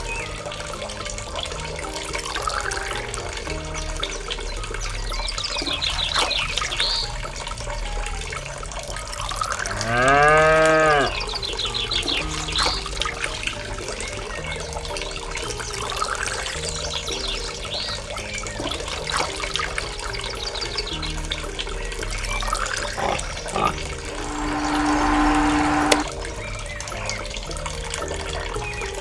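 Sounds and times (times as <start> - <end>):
water pouring from metal pail: 0.0 - 29.0
cow mooing: 9.7 - 11.2, 23.0 - 25.3.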